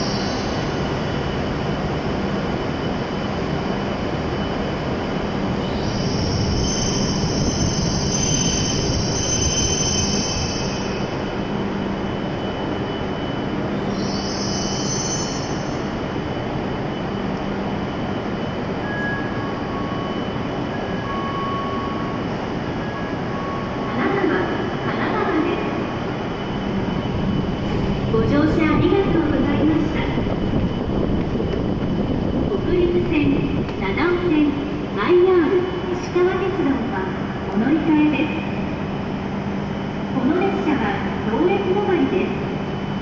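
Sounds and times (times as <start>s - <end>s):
train rumble: 0.0s - 43.0s
high-pitched brake squeal: 5.6s - 11.3s, 12.9s - 15.9s, 18.8s - 23.9s.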